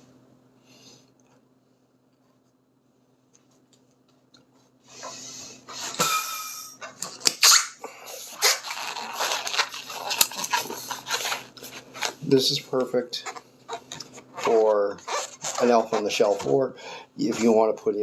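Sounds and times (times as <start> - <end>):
balloon squeaking and rubbing: 4.9 - 6.8, 7.4 - 18.0
high balloon squeal: 4.9 - 6.8, 7.4 - 12.2, 13.2 - 16.5.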